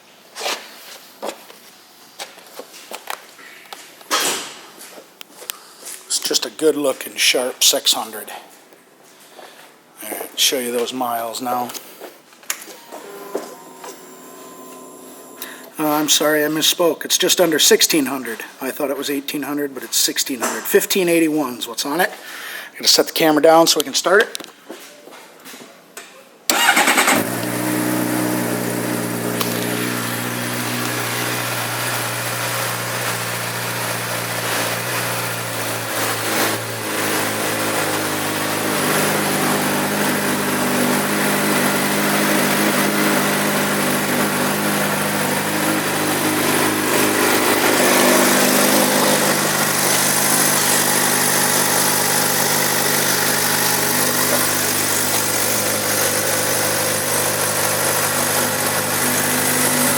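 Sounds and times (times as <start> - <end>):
motorcycle engine idling: 26.5 - 34.4.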